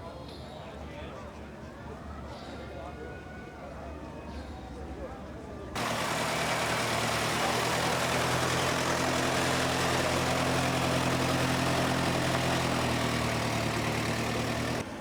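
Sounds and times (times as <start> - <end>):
engine idling: 5.8 - 14.8.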